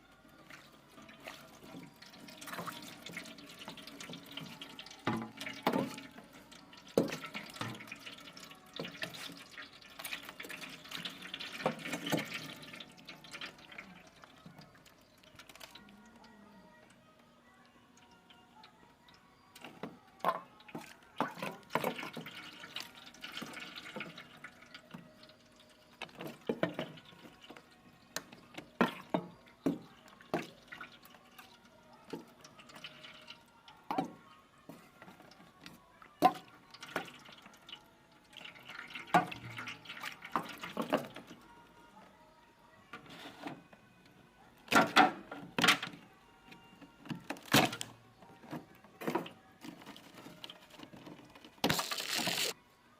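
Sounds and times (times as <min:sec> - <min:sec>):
water dripping and sloshing: 0:00.4 - 0:16.0, 0:19.5 - 0:41.4.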